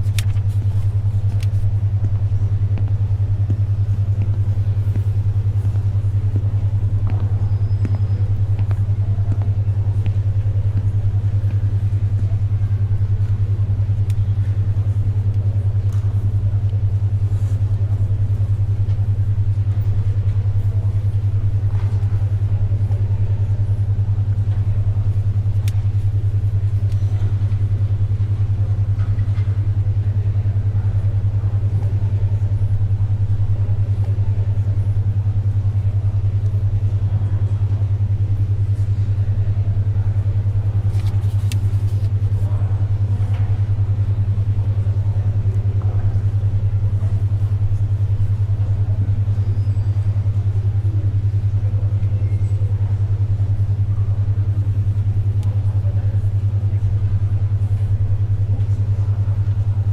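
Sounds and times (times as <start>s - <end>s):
pages turning: 0.0s - 0.7s, 40.9s - 42.2s
library background noise: 0.0s - 59.9s
steady low pulsing hum: 0.0s - 59.9s.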